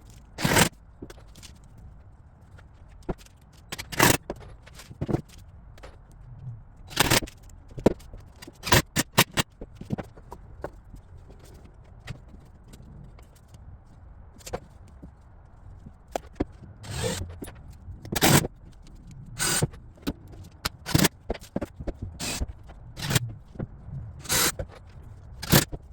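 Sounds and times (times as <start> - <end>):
wood and tools scraping: 15.8 - 25.9.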